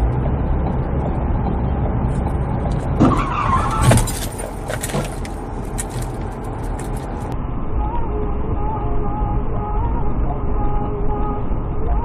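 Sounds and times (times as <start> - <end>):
car engine and road rumble: 0.0 - 12.0
tyre squeal: 3.0 - 5.2
clicks and clatters: 3.8 - 7.4.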